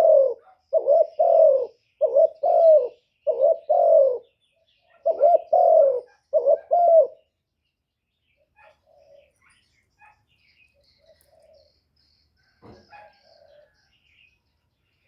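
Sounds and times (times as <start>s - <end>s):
dove cooing: 0.0s - 7.3s, 8.6s - 9.4s, 10.8s - 11.8s, 12.4s - 13.8s.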